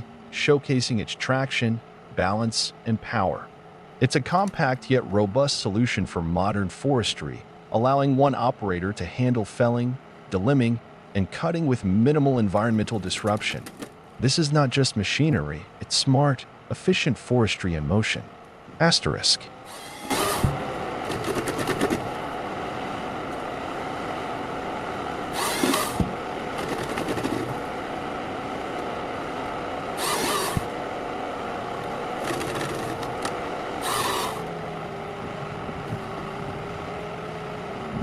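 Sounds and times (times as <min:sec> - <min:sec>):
harvester engine running: 0:19.5 - 0:38.0
short noisy machine burst: 0:19.7 - 0:20.6, 0:25.3 - 0:26.0, 0:30.0 - 0:30.7, 0:33.8 - 0:34.5.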